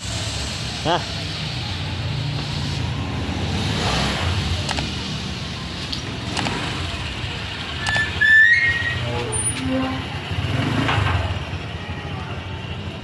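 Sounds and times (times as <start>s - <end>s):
traffic rumble: 0.0s - 13.0s
high whistle-like tone: 7.9s - 10.0s.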